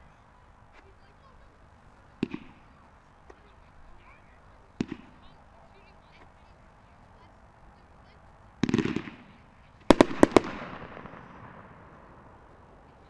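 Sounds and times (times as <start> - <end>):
firework loud bangs echoing: 2.1 - 2.9, 4.7 - 5.9, 8.6 - 12.6.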